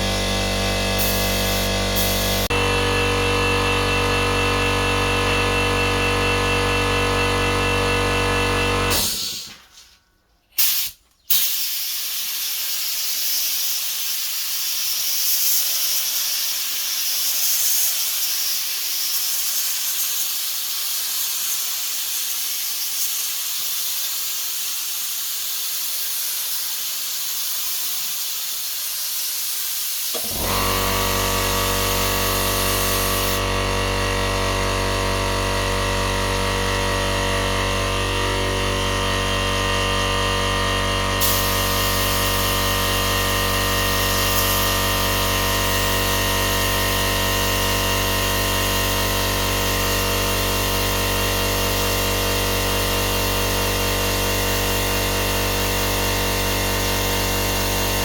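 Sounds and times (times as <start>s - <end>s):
high-pitched spraying hiss: 0.0s - 2.5s, 31.6s - 33.4s, 41.2s - 47.5s.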